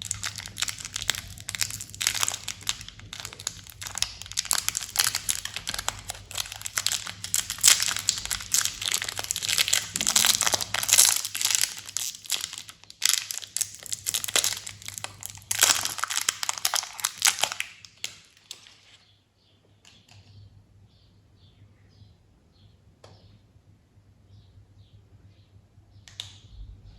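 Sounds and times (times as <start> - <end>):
candy wrappers crinkling: 0.0 - 19.0.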